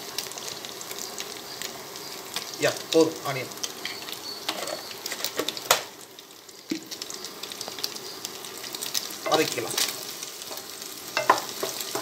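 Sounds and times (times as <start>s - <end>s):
onion and egg sizzling in oil: 0.0s - 12.0s.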